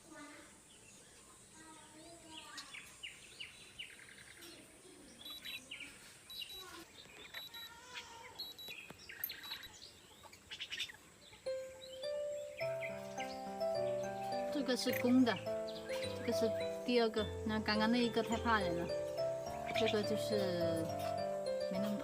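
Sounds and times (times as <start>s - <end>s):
bird chirping and whistling: 18.7s - 22.0s.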